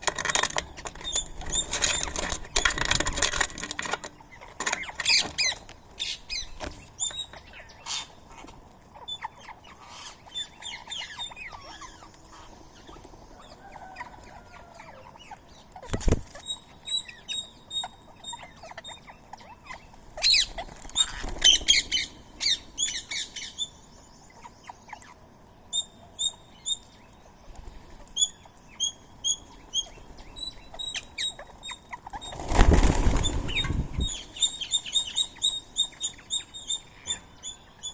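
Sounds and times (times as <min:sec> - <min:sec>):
birds chirping: 0:00.0 - 0:37.9
wings flapping: 0:15.9 - 0:16.4, 0:20.5 - 0:21.9, 0:32.1 - 0:34.1.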